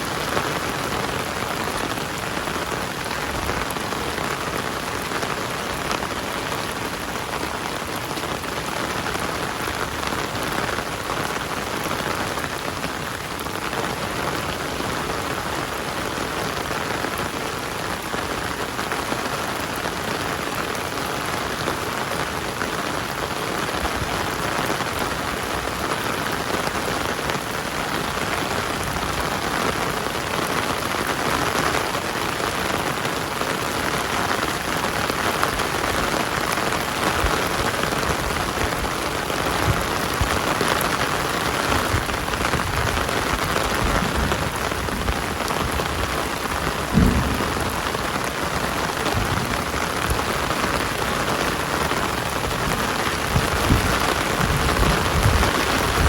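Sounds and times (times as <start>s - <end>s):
heavy rain falling: 0.0s - 56.0s
low thumps: 43.8s - 50.9s.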